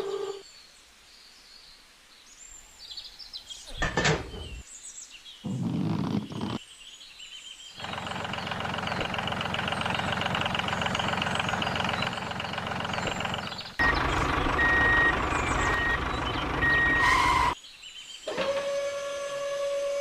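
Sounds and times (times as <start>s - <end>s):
vehicle engine running: 7.8s - 17.6s
reversing alarm beeping: 13.8s - 17.6s.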